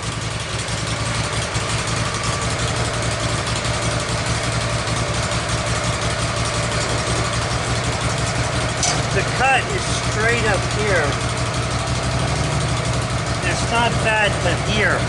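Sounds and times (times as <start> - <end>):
sawmill engine droning: 0.0 - 15.0.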